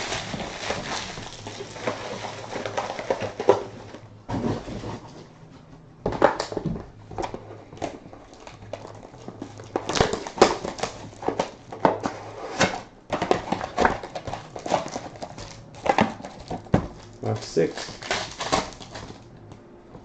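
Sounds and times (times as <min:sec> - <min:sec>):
foil packs and cardboard box handled: 0:00.0 - 0:05.4, 0:06.1 - 0:19.3.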